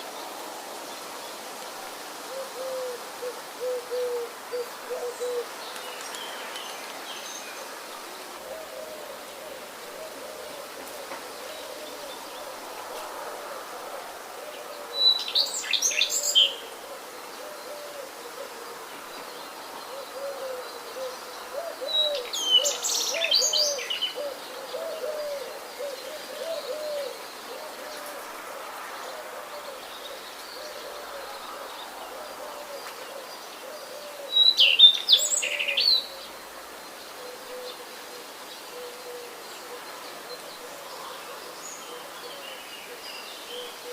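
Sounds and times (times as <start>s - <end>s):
background hiss: 0.0s - 43.9s.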